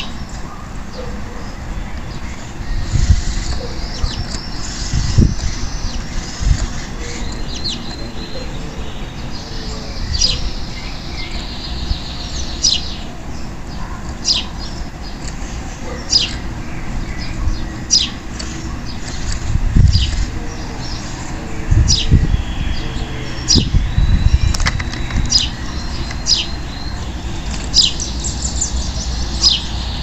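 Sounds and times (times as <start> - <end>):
canary chirping: 13.7 - 30.0.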